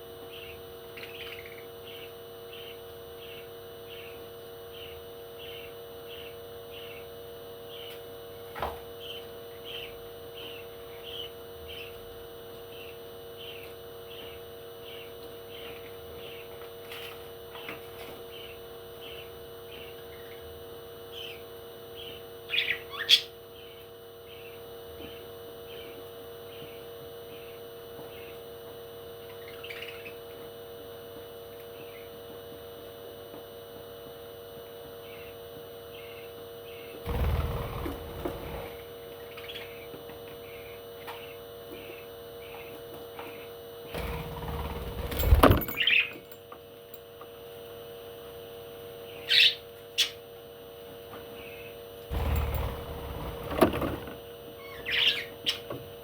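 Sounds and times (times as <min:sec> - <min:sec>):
electrical hum: 0:34.2 - 0:42.7, 0:43.3 - 0:46.4, 0:51.4 - 0:56.0
loud low rumbling noise: 0:37.1 - 0:38.9, 0:52.1 - 0:54.1.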